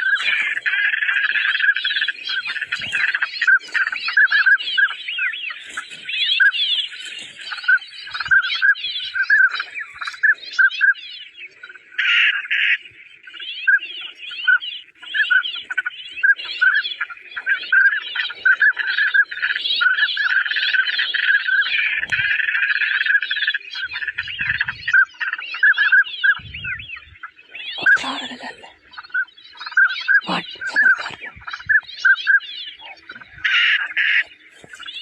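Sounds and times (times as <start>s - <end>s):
birds chirping in chorus: 0.0s - 35.0s.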